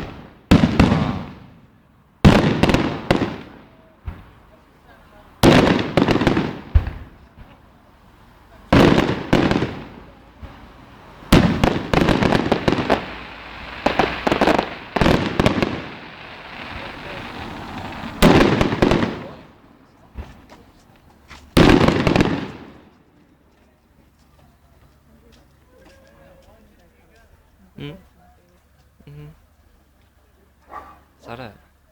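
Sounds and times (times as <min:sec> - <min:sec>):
fireworks bangs: 0:00.0 - 0:23.5
fireworks crackling: 0:00.0 - 0:31.9.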